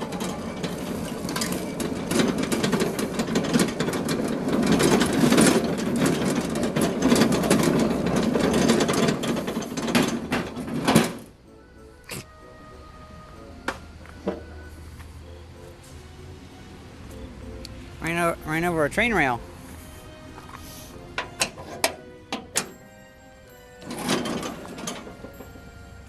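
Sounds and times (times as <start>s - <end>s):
lawn tractor rattling: 0.0s - 11.4s, 18.0s - 19.9s, 20.6s - 26.0s.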